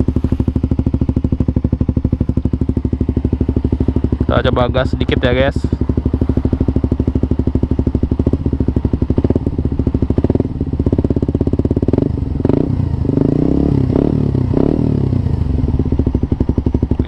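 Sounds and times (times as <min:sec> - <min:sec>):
engine throttle blips: 0:00.0 - 0:17.0
motorcycle engine idling: 0:00.0 - 0:17.0.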